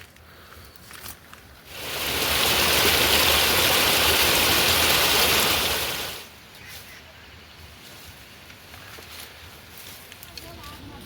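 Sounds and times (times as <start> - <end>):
rushing hissing water: 1.6 - 6.5.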